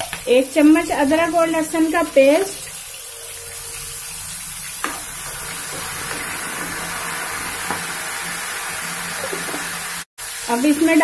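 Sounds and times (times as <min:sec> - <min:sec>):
paste sizzling in hot oil: 0:00.0 - 0:11.0.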